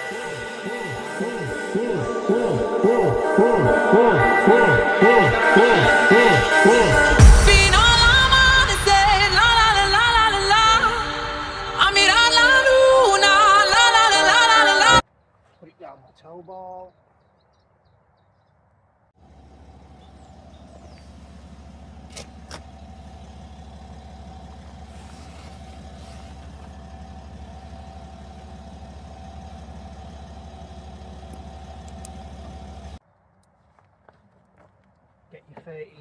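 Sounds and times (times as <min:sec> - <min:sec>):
motor humming: 0:19.2 - 0:33.0.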